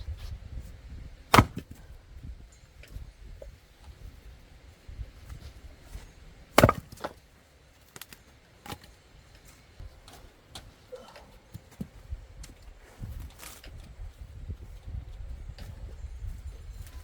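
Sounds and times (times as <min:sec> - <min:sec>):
axe splitting a log: 0:01.3 - 0:01.8, 0:06.5 - 0:07.2.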